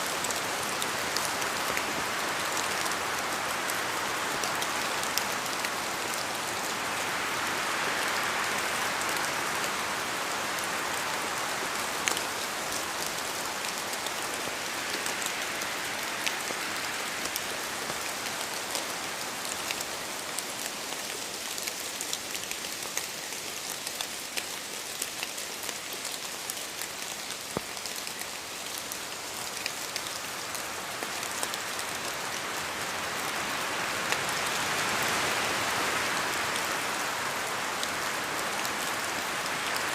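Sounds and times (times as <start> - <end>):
steady rain hissing: 0.0 - 39.9
raindrops clicking on surface: 20.6 - 31.6.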